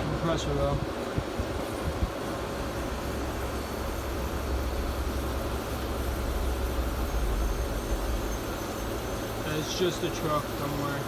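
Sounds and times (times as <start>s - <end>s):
window air conditioner running: 0.0s - 11.0s
faint brake squeal: 6.9s - 10.9s.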